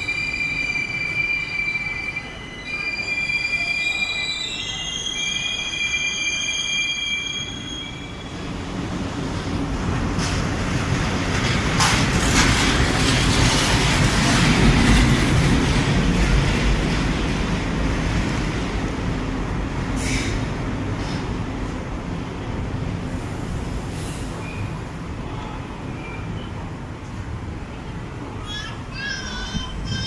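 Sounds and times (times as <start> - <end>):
train wheels squealing: 0.0 - 8.7, 24.0 - 26.6
train coaches rumbling on rails: 0.0 - 30.0.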